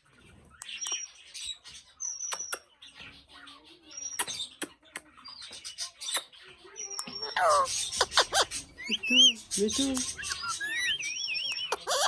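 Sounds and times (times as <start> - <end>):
parrot squeaking: 5.7 - 12.0
parrot talking: 7.0 - 12.0.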